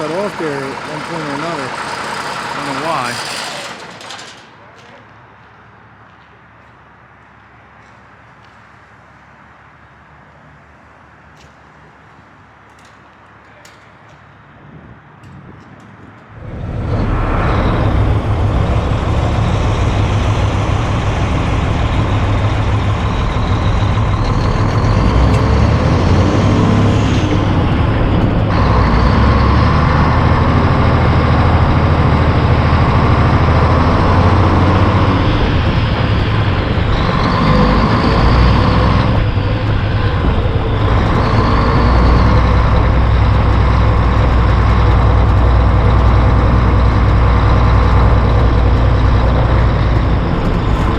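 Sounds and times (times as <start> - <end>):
diesel truck engine rumbling: 0.0 - 6.0, 16.2 - 50.9.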